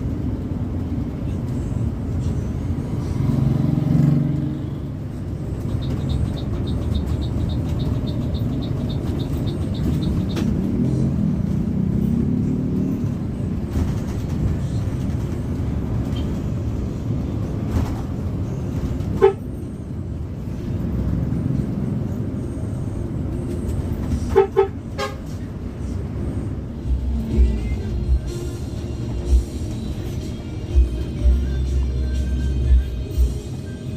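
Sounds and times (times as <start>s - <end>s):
bus engine and road noise: 0.0s - 33.9s
fast high ticking: 5.5s - 10.4s
bus horn toots: 5.7s - 10.6s, 19.0s - 19.6s, 24.0s - 25.5s.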